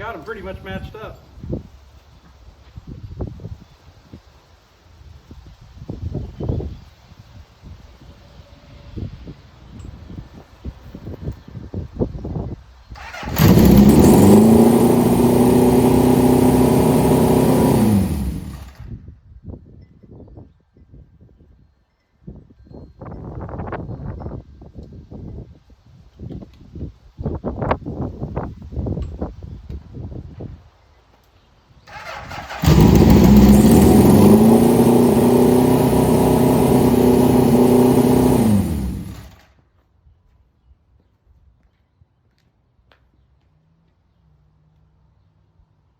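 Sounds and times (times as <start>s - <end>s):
motorcycle engine revving: 13.0s - 18.8s, 31.9s - 39.4s.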